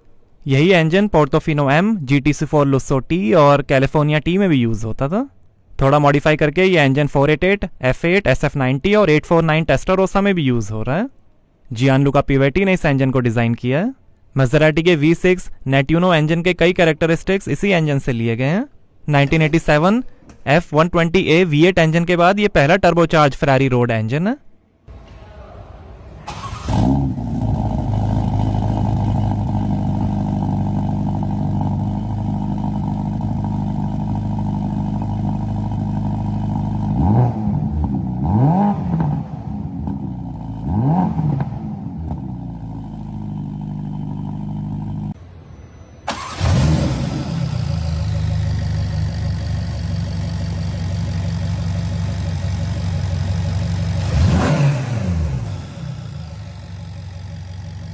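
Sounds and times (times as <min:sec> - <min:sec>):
car engine idling and blipped: 0:24.9 - 0:57.9.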